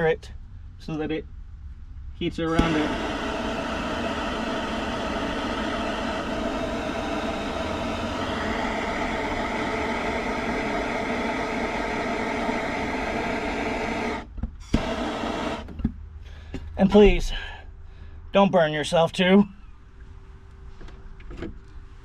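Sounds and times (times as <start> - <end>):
torch flame hissing: 2.5 - 15.7.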